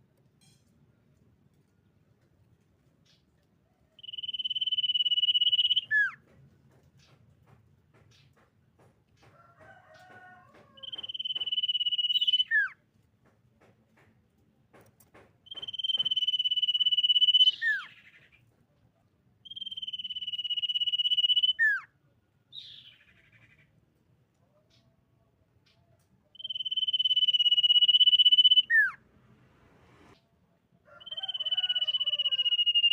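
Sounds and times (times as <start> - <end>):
bird whistling: 4.0 - 6.2, 10.8 - 12.7, 15.5 - 18.0, 19.4 - 21.8, 26.4 - 29.0, 31.0 - 32.9
bird chattering notes: 26.4 - 29.0.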